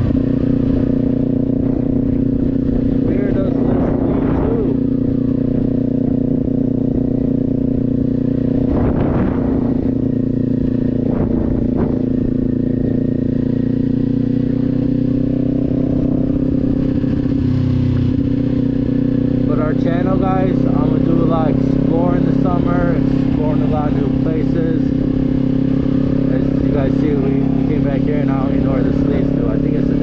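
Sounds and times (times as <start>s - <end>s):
rush of noise: 0.0s - 13.8s
motorcycle engine cruising: 0.0s - 30.0s.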